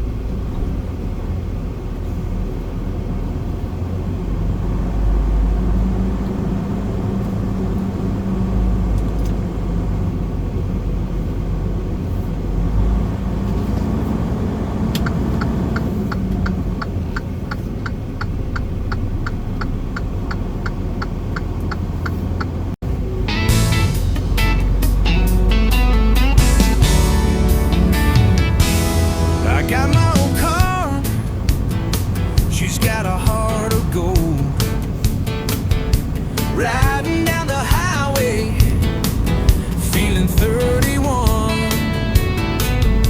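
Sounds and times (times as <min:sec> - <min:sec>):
truck engine rumbling: 0:00.0 - 0:43.0
turn signal ticking: 0:01.7 - 0:43.0
music: 0:23.2 - 0:43.0.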